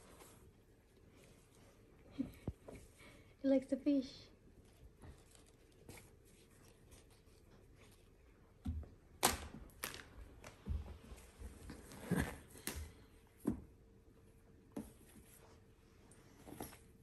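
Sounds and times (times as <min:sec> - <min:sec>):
rustles of handling: 0:04.6 - 0:08.4.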